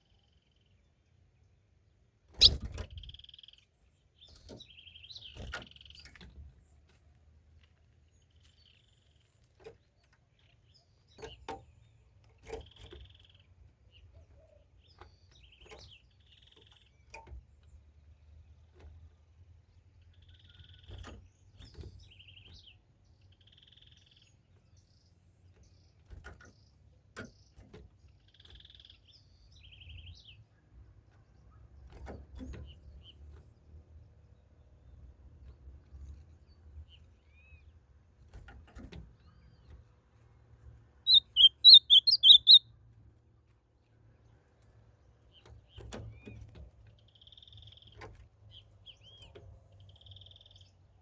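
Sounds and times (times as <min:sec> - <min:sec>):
bird singing short phrases: 0:02.3 - 0:06.2, 0:41.1 - 0:42.7, 0:47.0 - 0:50.9.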